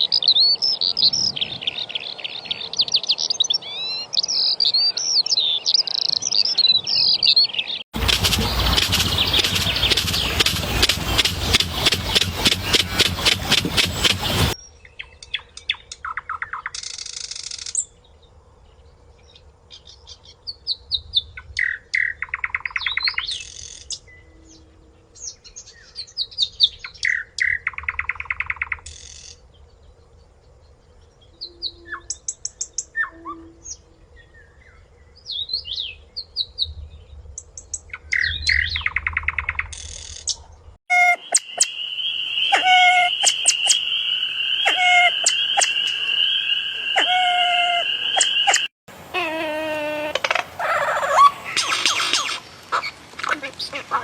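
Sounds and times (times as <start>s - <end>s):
songbirds singing: 0.0s - 49.3s
loud harsh pulsing rasp: 8.0s - 14.6s
bird chirps and trills: 8.0s - 17.8s, 37.9s - 48.7s.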